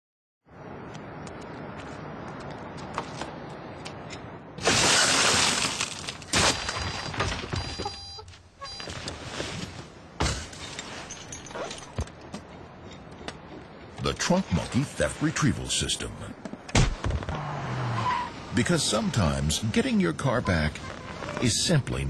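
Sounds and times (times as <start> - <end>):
sharp crack: 4.6 - 7.5, 16.7 - 17.4
glass smashing: 4.6 - 7.8, 10.2 - 12.0.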